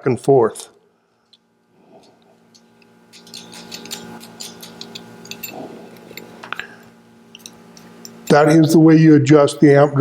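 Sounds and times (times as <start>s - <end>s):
steady hum: 0.0s - 10.0s
small metal clicks and scrapes: 1.2s - 6.6s.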